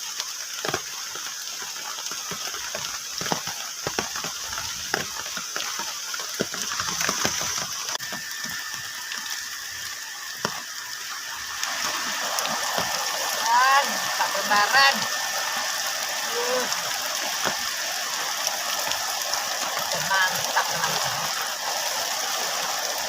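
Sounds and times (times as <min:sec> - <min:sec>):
rain on a plastic tarp: 0:00.0 - 0:23.0.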